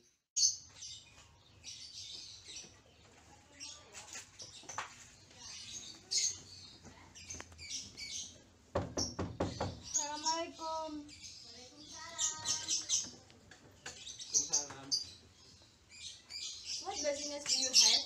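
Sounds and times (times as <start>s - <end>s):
small birds chirping: 0.0s - 18.0s
knocks on a wooden door: 8.7s - 10.0s.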